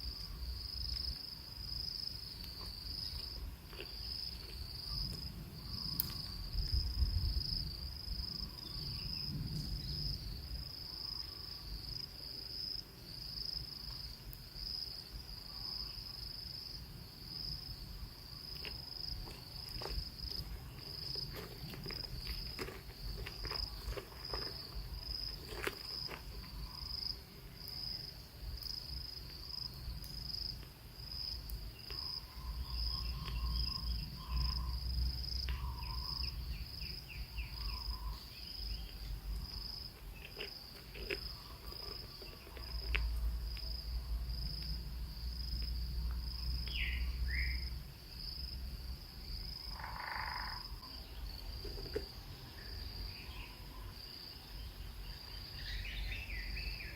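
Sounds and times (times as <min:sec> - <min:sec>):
insect trilling: 0:17.3 - 0:44.7, 0:49.2 - 0:56.9
bird chirping: 0:31.8 - 0:34.8, 0:35.5 - 0:39.1, 0:46.7 - 0:47.7, 0:52.4 - 0:56.9.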